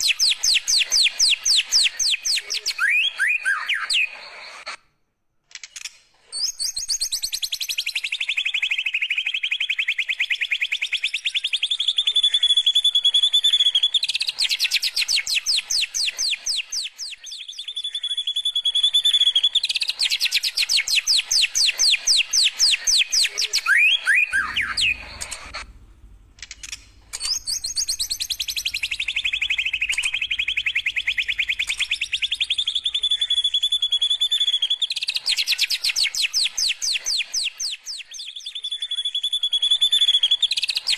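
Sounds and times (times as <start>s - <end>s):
bird singing long trills: 0.0s - 4.3s, 6.4s - 25.6s, 27.1s - 40.9s
faint low hum: 24.2s - 33.1s.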